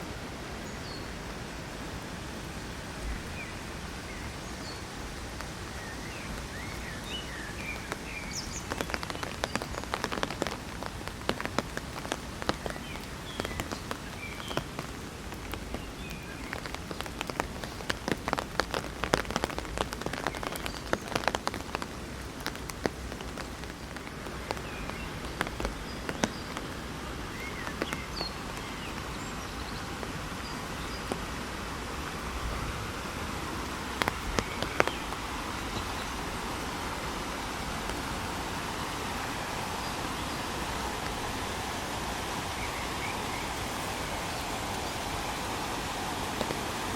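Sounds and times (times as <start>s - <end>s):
rain hissing: 0.0s - 46.9s
raindrops striking umbrella: 4.1s - 46.9s.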